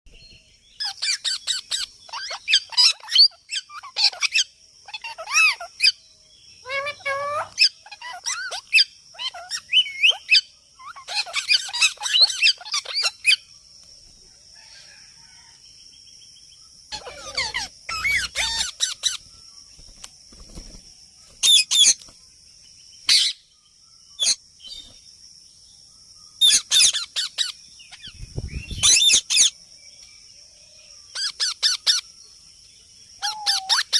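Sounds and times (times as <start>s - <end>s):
parrot squawking and whistling: 16.9s - 19.2s, 33.2s - 33.9s.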